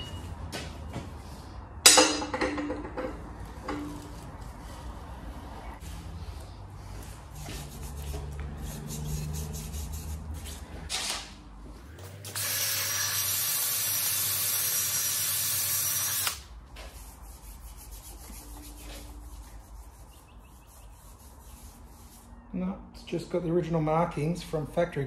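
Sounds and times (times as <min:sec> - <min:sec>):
power tool running: 0:12.0 - 0:16.4.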